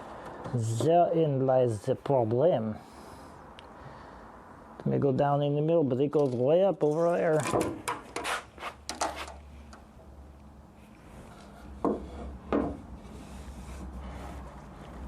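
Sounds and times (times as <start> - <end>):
wood rubbing and scraping: 10.9 - 15.0
knocks on wood: 11.8 - 12.8.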